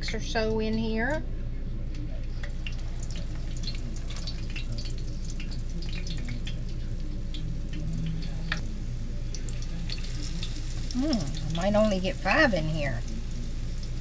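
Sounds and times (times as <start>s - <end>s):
low steady hum: 0.0s - 14.0s
food frying in hot oil: 2.2s - 14.0s.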